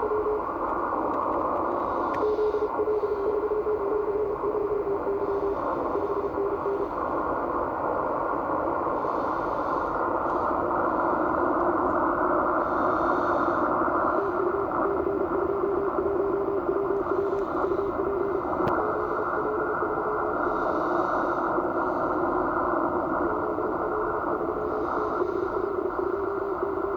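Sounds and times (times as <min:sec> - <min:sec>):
radio band noise hiss: 0:00.0 - 0:26.9.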